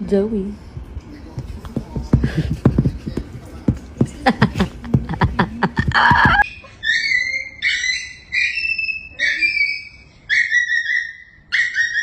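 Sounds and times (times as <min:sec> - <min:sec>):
high whistle-like animal calls: 0:06.5 - 0:12.0.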